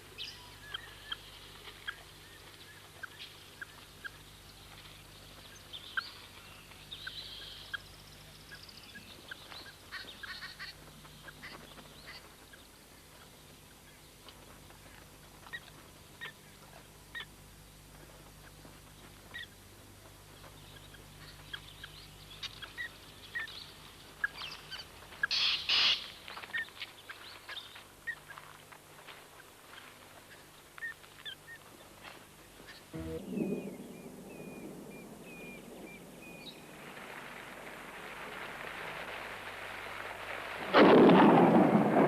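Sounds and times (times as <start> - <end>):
birds chirping and calling: 20.4 - 28.2.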